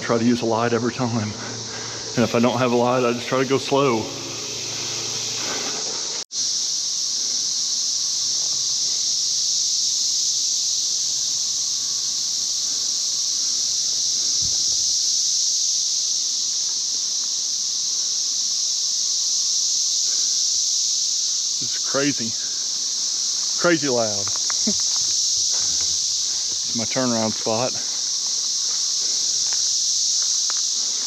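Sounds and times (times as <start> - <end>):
cicadas buzzing: 0.0 - 31.0.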